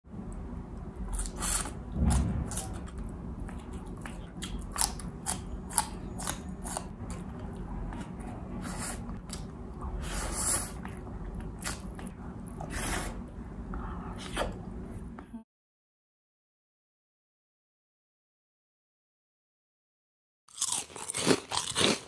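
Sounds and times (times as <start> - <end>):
chewing and biting food: 1.0 - 8.4, 20.5 - 22.0.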